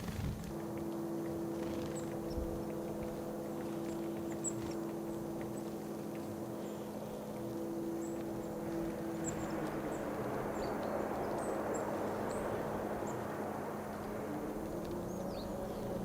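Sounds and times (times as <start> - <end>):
steady motor drone: 0.0 - 16.0
faint high ticks: 0.4 - 11.6.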